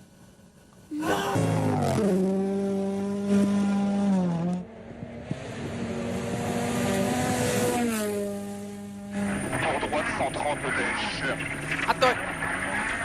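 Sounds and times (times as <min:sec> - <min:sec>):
rally car engine revving: 0:01.1 - 0:13.0.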